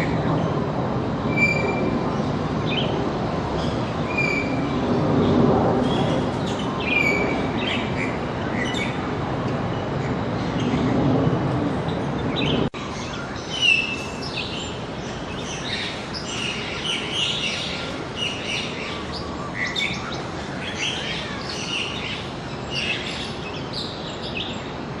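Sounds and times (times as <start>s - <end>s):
small birds chirping: 11.8s - 24.8s.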